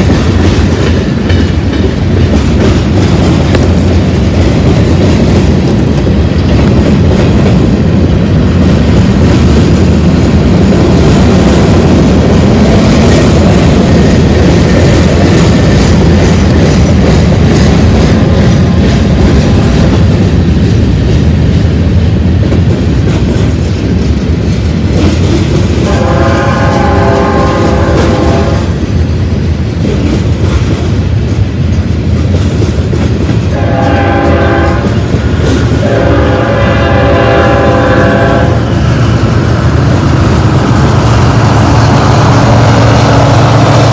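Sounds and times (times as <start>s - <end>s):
freight train rumbling past: 0.0s - 43.9s
wheels clacking over rail joints: 0.0s - 43.9s
locomotive air horn: 25.8s - 28.7s, 33.5s - 35.0s, 35.8s - 38.8s.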